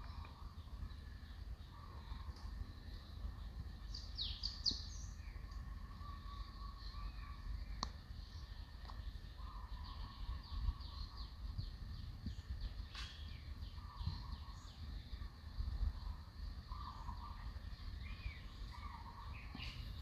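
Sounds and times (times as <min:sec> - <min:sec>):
small birds chirping: 0:00.0 - 0:20.0
wind on microphone: 0:09.5 - 0:20.0.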